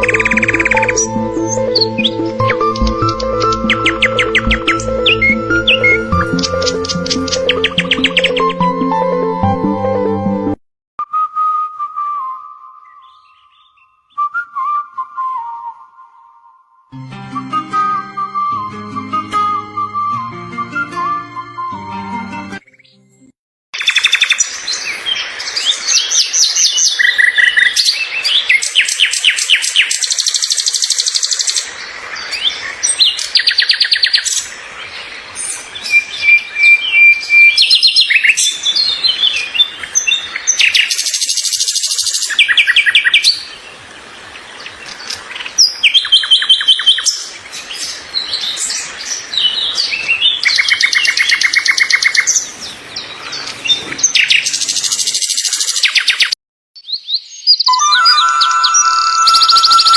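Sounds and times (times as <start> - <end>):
songbird singing trills and chirps: 0.0 - 8.7, 12.6 - 14.8, 23.8 - 24.5, 44.8 - 48.6, 49.4 - 52.4, 53.2 - 59.9.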